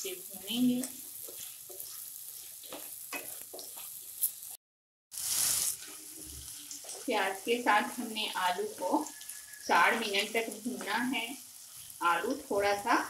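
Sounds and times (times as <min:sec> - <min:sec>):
potatoes sizzling in hot oil: 0:00.0 - 0:13.0
spatula scraping a pan: 0:00.8 - 0:04.5.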